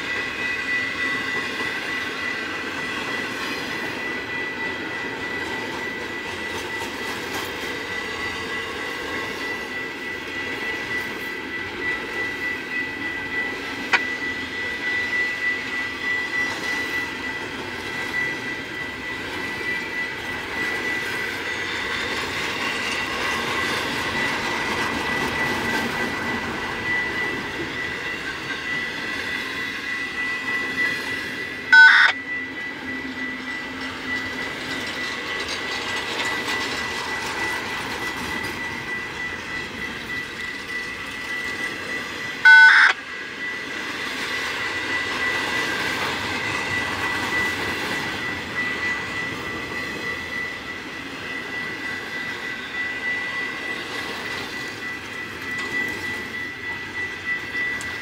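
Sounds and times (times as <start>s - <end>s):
freight train rumbling: 0.0s - 58.0s
high whine: 0.0s - 58.0s
train horn blasts: 31.7s - 32.2s, 42.4s - 43.0s.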